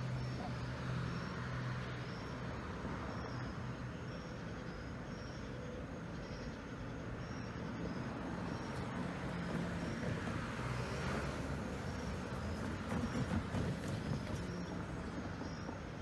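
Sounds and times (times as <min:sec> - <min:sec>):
diesel locomotive engine rumble: 0:06.8 - 0:16.0.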